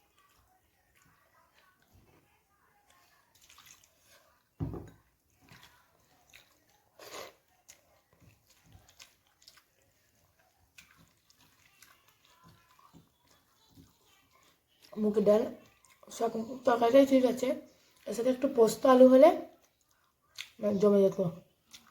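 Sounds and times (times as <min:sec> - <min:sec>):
chewing: 0:00.0 - 0:18.5, 0:19.4 - 0:20.7, 0:21.4 - 0:21.9
dull knock: 0:04.6 - 0:04.9
food mixed by hand clicks: 0:07.7 - 0:15.1.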